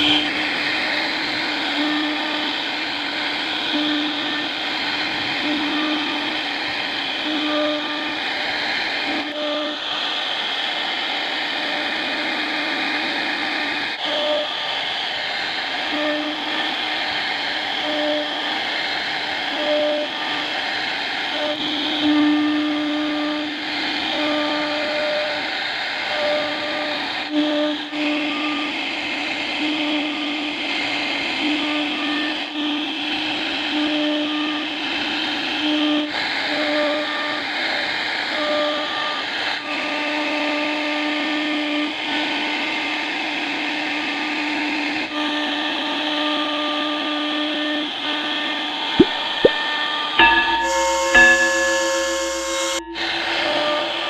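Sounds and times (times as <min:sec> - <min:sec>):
machine pitched hum: 0:00.0 - 0:25.4, 0:47.6 - 0:54.0
router spindle cutting hiss: 0:00.0 - 0:54.0.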